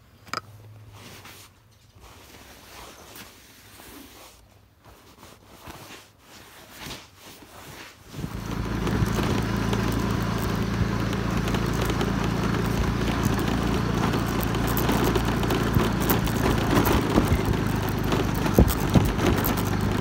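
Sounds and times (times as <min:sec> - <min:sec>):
motorcycle engine starting and idling: 0:08.1 - 0:20.0
small knocks: 0:08.3 - 0:20.0.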